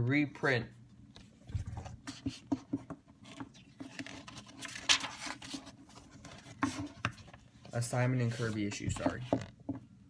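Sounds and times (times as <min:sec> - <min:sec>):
comic book pages handled: 0:01.4 - 0:09.5
paper rustle: 0:03.2 - 0:09.4.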